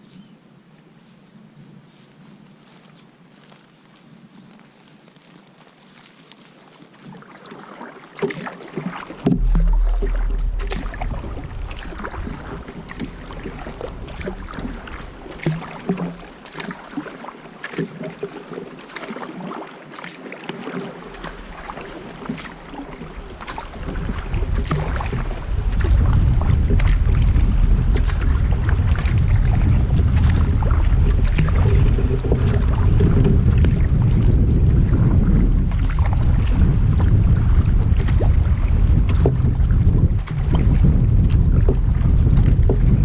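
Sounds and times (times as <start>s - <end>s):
paddle splashing in water: 5.6s - 43.0s
wind rumbling on microphone: 8.8s - 18.4s, 20.6s - 43.0s.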